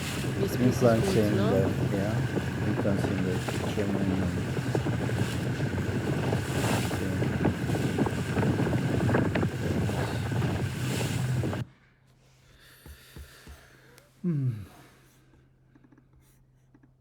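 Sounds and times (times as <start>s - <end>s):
water rushing past boat: 0.0s - 11.6s
wind blasting microphone: 0.0s - 11.6s
steady low hum: 0.0s - 11.8s.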